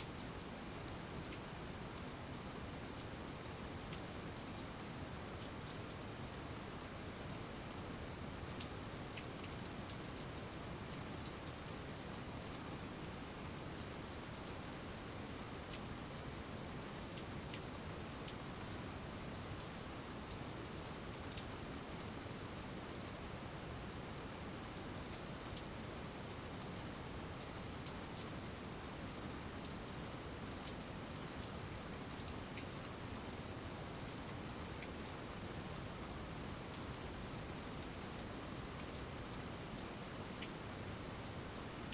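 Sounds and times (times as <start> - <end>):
steady rain hiss: 0.0 - 41.9
sharp drip ticks: 8.6 - 12.6.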